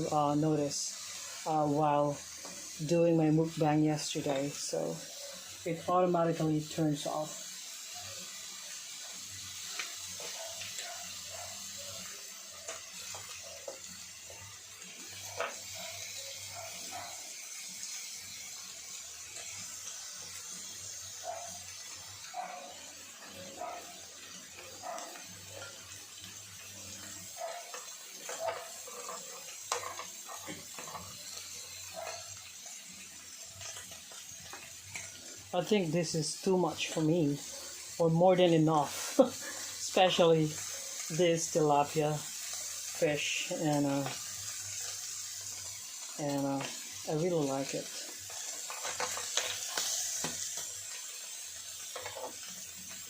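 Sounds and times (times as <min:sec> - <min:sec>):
meat sizzling on grill pan: 0:00.0 - 0:53.0.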